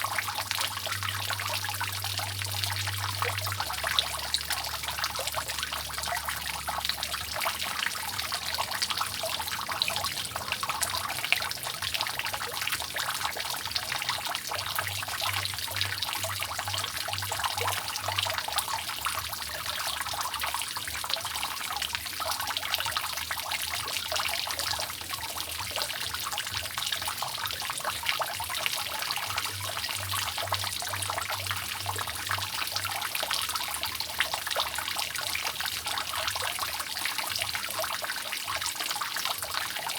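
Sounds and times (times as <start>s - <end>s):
water dripping off a roof: 0.0s - 39.9s.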